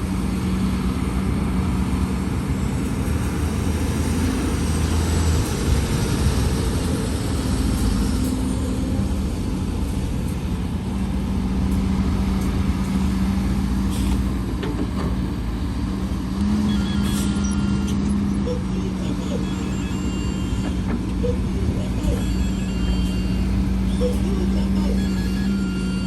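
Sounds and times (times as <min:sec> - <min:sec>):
diesel machinery engine hum: 0:00.0 - 0:26.0.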